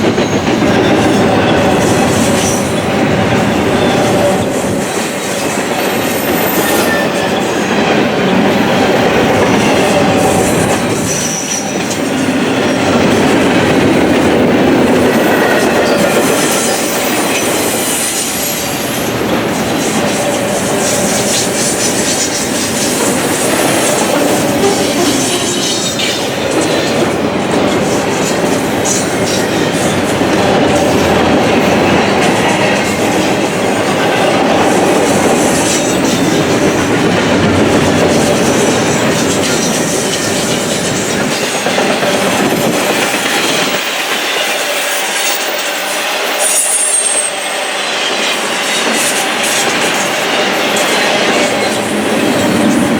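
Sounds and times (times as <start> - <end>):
freight train rolling past: 0.0 - 52.9
high wheel squeals: 0.2 - 8.5, 15.1 - 26.8, 44.4 - 47.8.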